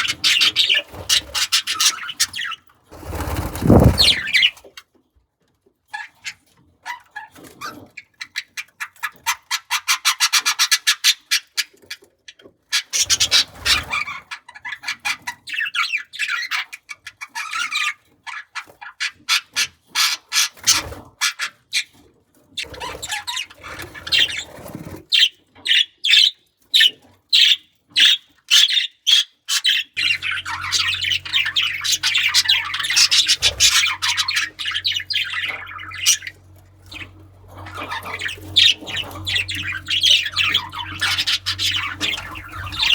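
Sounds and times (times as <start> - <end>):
budgerigars chirping: 0.0 - 4.6, 12.8 - 21.5, 22.6 - 42.9.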